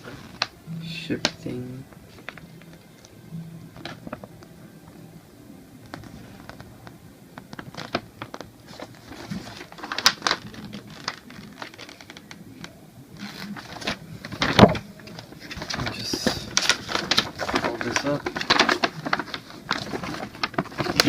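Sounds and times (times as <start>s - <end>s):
packaging clicks and rustles: 5.9s - 21.0s.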